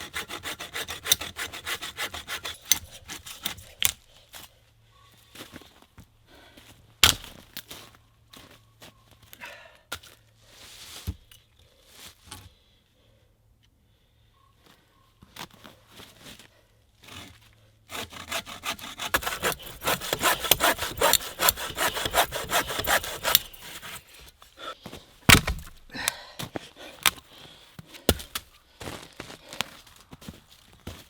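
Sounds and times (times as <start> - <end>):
hand saw cutting wood: 0.0 - 4.0, 17.1 - 27.4, 28.0 - 29.0
wood knocking: 25.3 - 25.9.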